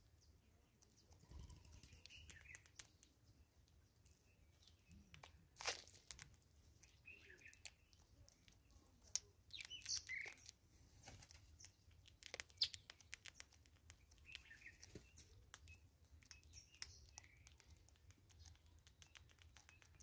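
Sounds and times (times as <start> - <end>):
faint bird chirps: 0.0 - 5.4, 6.8 - 10.6, 12.4 - 20.0.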